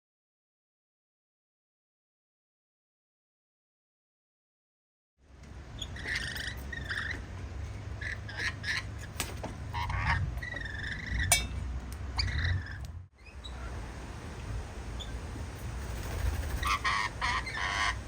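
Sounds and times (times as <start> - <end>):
birds harsh calls: 5.7 - 13.9, 14.9 - 18.0.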